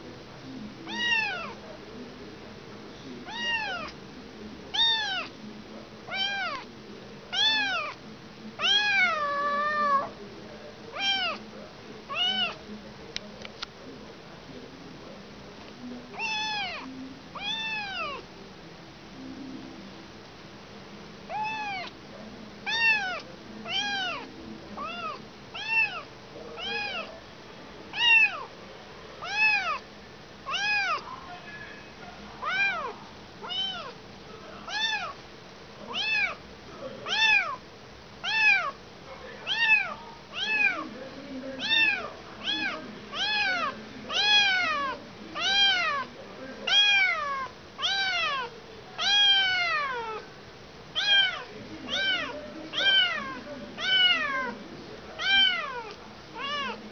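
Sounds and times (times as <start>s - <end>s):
kitten meowing: 0.9s - 1.6s, 3.2s - 4.0s, 4.7s - 5.3s, 6.1s - 6.7s, 7.3s - 8.0s, 8.6s - 10.1s, 10.9s - 11.4s, 12.1s - 12.6s, 16.2s - 18.2s, 21.3s - 22.0s, 22.7s - 27.1s, 27.9s - 28.5s, 29.2s - 29.8s, 30.5s - 31.0s, 32.4s - 34.0s, 34.7s - 35.2s, 35.9s - 36.4s, 37.1s - 37.6s, 38.2s - 38.8s, 39.5s - 40.8s, 41.6s - 46.1s, 46.7s - 50.2s, 51.0s - 54.5s, 55.2s - 56.8s.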